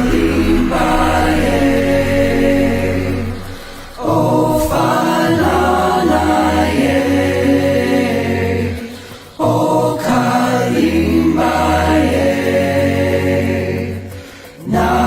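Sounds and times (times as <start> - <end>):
low drone: 0.0 - 9.5
choir holding sustained notes: 0.0 - 15.0.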